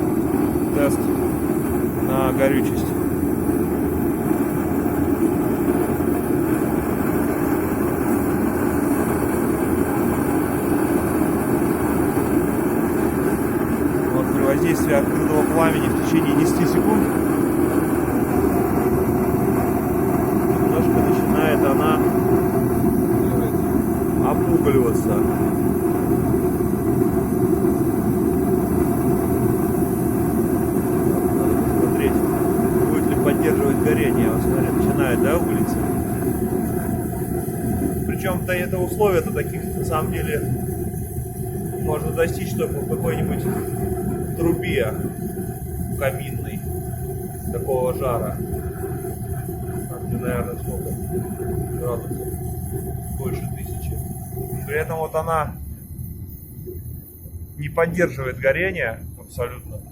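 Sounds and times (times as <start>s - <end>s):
heat cannon flame rushing: 0.0s - 59.0s.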